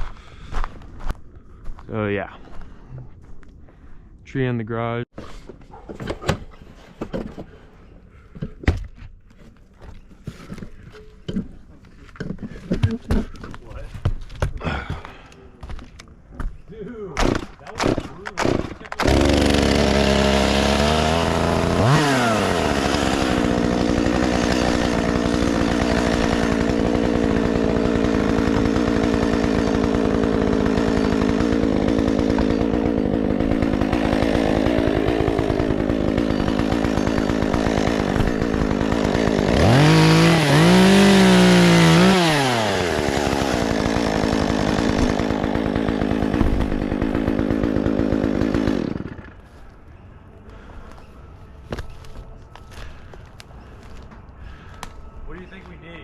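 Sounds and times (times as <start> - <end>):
chainsaw running and revving: 17.8 - 49.4.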